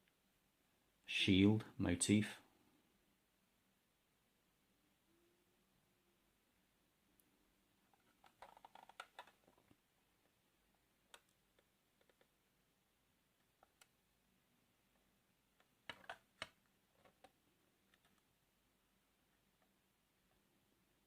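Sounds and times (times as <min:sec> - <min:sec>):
faint clicks and taps: 0:07.9 - 0:12.4, 0:13.4 - 0:14.0, 0:14.9 - 0:18.4.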